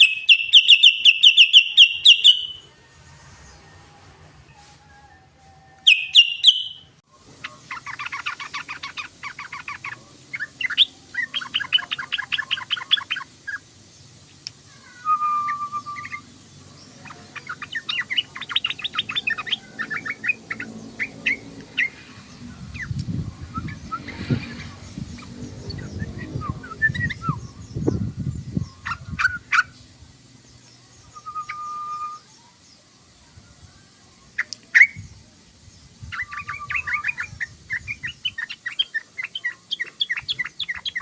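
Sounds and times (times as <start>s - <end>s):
bird sharp notes: 0.0s - 2.6s, 5.8s - 7.0s
low bird whistle: 0.0s - 2.6s, 5.8s - 6.9s.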